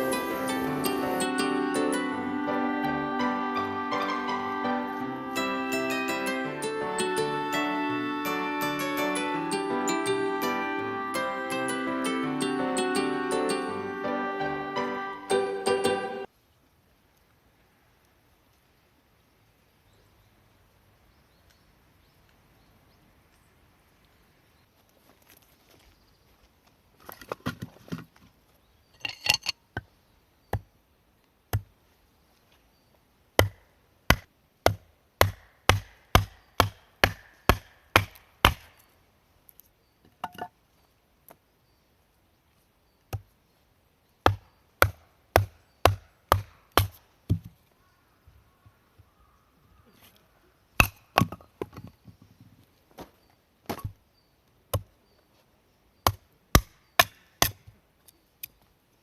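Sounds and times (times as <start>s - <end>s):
firewood being chopped: 31.5s - 31.7s, 33.4s - 38.8s, 43.1s - 43.3s, 44.2s - 47.6s, 50.8s - 51.9s, 53.7s - 54.0s, 56.0s - 57.7s.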